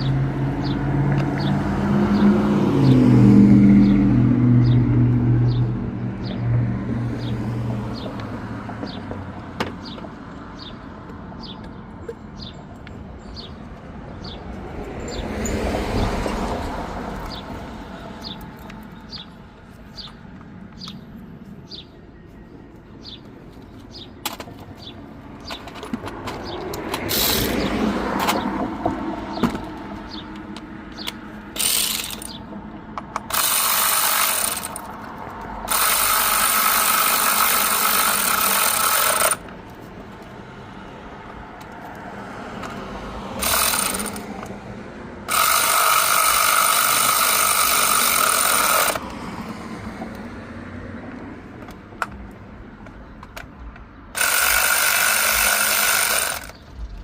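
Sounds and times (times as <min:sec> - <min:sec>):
tools clattering: 0:24.2 - 0:27.6
hand ratchet clicking: 0:26.7 - 0:27.6, 0:31.0 - 0:39.5, 0:43.4 - 0:44.5, 0:45.3 - 0:49.1, 0:54.2 - 0:56.7
power tool running: 0:27.1 - 0:27.6, 0:31.6 - 0:32.4, 0:33.2 - 0:34.9, 0:35.7 - 0:39.4, 0:43.4 - 0:44.4, 0:45.2 - 0:49.1, 0:54.2 - 0:56.7.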